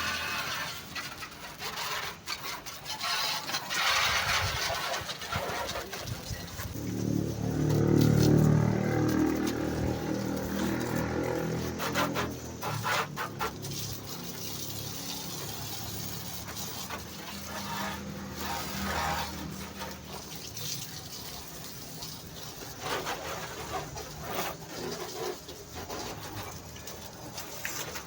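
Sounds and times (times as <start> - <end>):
water spraying and splashing: 0.0 - 28.0.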